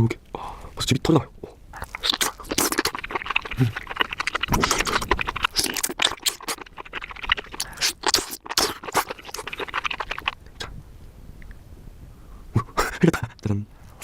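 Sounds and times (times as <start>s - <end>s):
wet chewing of mushroom: 1.7s - 10.7s.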